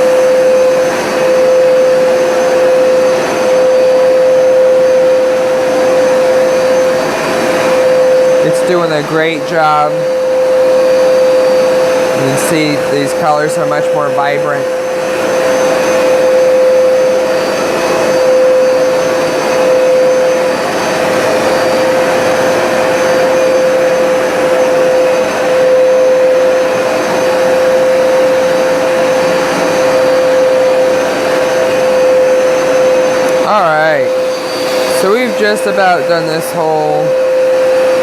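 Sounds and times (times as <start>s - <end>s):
carpet cleaner motor whine: 0.0s - 38.0s
rush of suction: 33.9s - 36.9s.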